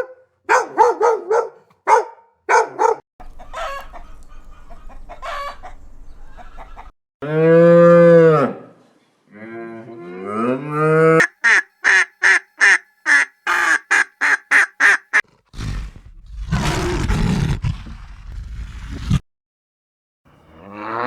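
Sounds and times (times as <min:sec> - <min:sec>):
duck quacking: 0:11.2 - 0:15.3
low rough animal growl: 0:15.3 - 0:19.2
cow mooing: 0:20.5 - 0:21.0.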